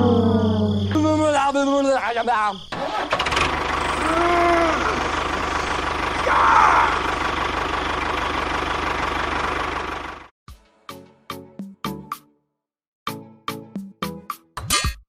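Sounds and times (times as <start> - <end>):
engine idling: 2.7 - 10.3.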